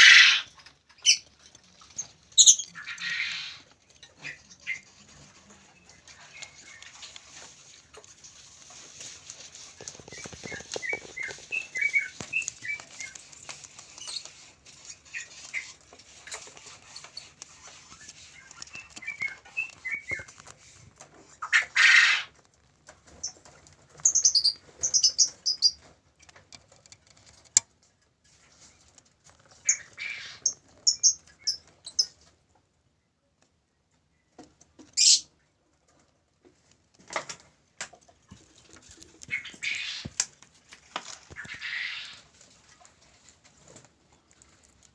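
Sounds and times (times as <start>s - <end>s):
lovebirds chirping: 0.0s - 8.1s, 9.0s - 20.5s
wings flapping: 9.0s - 15.8s.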